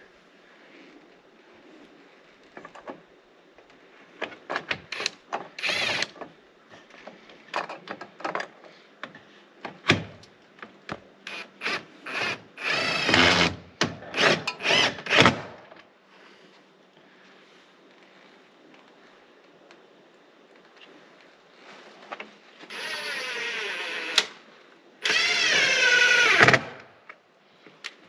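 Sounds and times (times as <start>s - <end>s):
power drill driving screw into wood: 4.9s - 6.1s, 11.3s - 15.6s, 22.7s - 24.4s, 25.0s - 26.9s.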